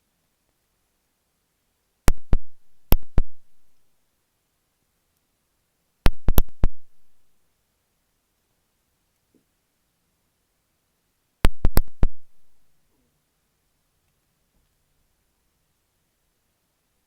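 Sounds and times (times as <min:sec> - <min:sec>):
pins flicked against microphone: 0:02.1 - 0:03.4, 0:06.1 - 0:06.9, 0:11.5 - 0:12.3.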